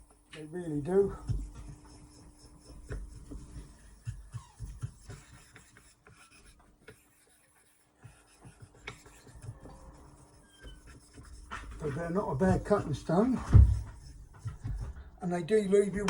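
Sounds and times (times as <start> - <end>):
scrapes and knocks on whetstone: 8.0 - 15.2.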